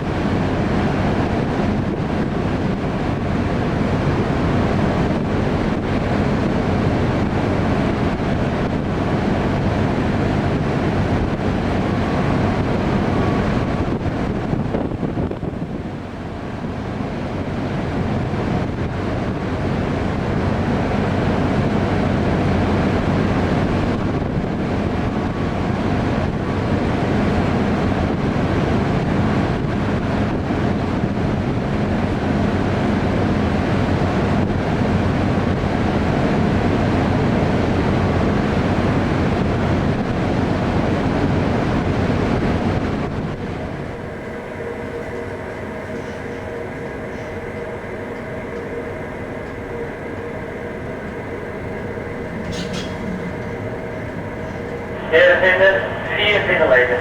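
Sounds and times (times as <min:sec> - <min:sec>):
low drone of ship machinery: 0:00.0 - 0:57.0
strong wind on microphone: 0:10.5 - 0:16.0, 0:22.7 - 0:32.1.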